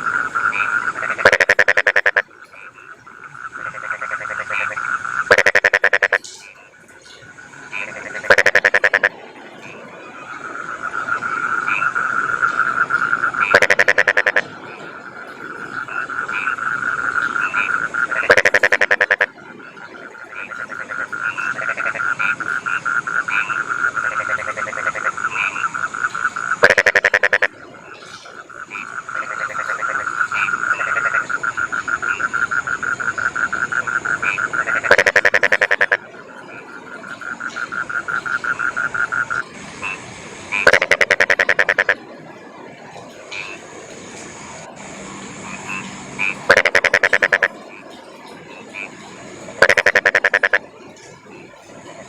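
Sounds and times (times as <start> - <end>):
rasping frog call bursts: 0.0 - 6.7, 7.4 - 9.2, 10.8 - 14.5, 15.8 - 19.4, 20.1 - 42.0, 45.4 - 47.8, 49.6 - 50.6
frogs croaking in chorus: 0.0 - 52.0.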